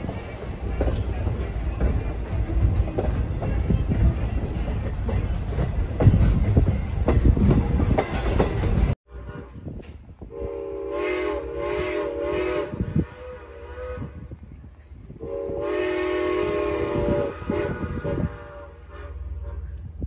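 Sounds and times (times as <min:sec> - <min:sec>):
train wheels rumbling on rails: 0:00.0 - 0:20.0
steam locomotive whistle: 0:10.3 - 0:14.4, 0:15.2 - 0:19.9.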